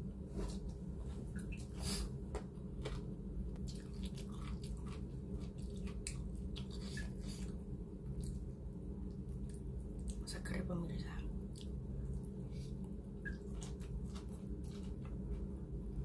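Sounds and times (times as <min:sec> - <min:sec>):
steady low hum: 0:00.0 - 0:16.0
wet chewing mouth sounds: 0:03.6 - 0:08.5, 0:11.5 - 0:15.5.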